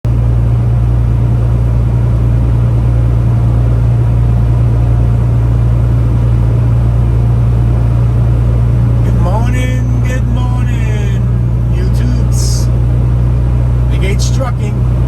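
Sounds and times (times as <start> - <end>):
truck engine droning: 0.1 - 15.0
road noise: 6.4 - 15.0.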